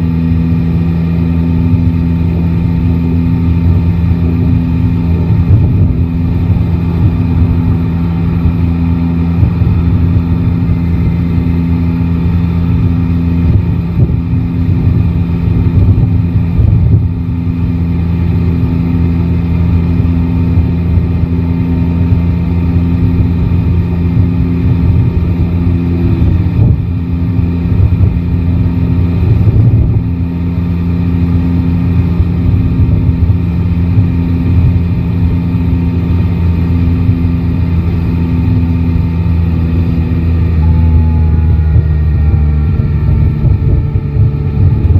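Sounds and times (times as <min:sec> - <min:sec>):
motorcycle engine running: 0:00.0 - 0:44.9
wind rush on microphone: 0:00.0 - 0:44.9.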